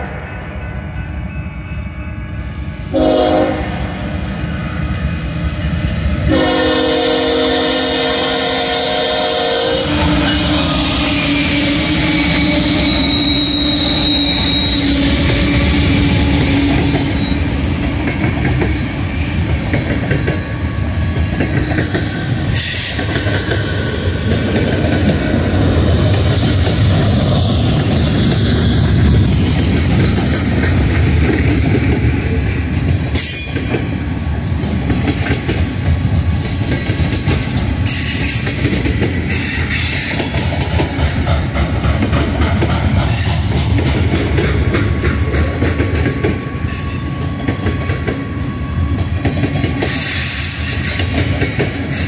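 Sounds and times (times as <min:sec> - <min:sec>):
locomotive horn blast: 0:02.2 - 0:04.0, 0:06.3 - 0:17.5
high squeal: 0:09.7 - 0:17.6.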